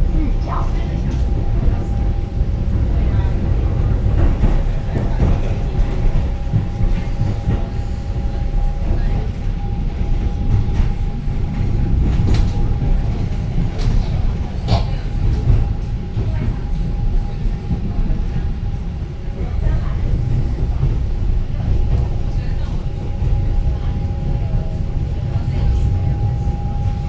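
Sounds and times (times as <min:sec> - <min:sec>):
electric train rumble: 0:00.0 - 0:27.0
steady humming tone: 0:23.2 - 0:27.0.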